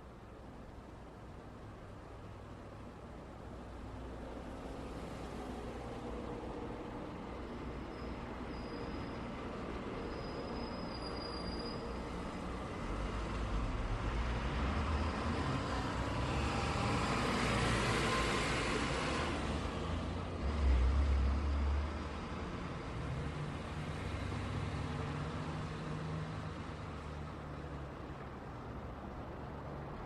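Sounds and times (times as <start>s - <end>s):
passing vehicles hiss: 0.0s - 30.0s
vehicle passing by: 13.0s - 27.7s.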